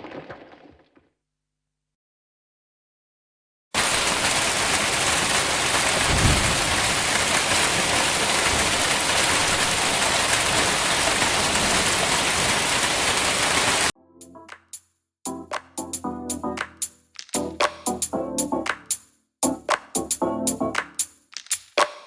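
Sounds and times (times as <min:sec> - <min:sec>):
heavy rain pouring: 0:03.8 - 0:13.9
low rumble of thunder: 0:06.0 - 0:06.8.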